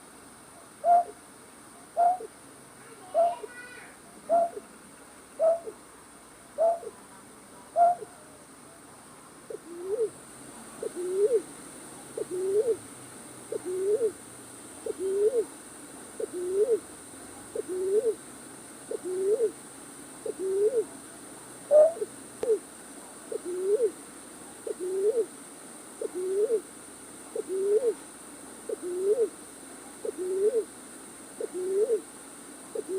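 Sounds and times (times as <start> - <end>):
night bird hooting: 0.8 - 1.2, 2.0 - 2.3, 4.3 - 4.7, 5.4 - 5.8, 6.6 - 7.0, 7.8 - 8.1, 9.5 - 10.2, 10.8 - 11.5, 12.2 - 12.8, 13.5 - 14.2, 14.8 - 15.5, 16.2 - 16.8, 17.6 - 18.2, 18.9 - 19.6, 20.2 - 20.9, 21.7 - 22.6, 23.3 - 24.0, 24.6 - 25.3, 26.0 - 26.7, 27.3 - 28.0, 28.7 - 29.4, 30.0 - 30.7, 31.4 - 32.1
upward-hooked bird calls: 4.3 - 4.6, 5.4 - 5.8.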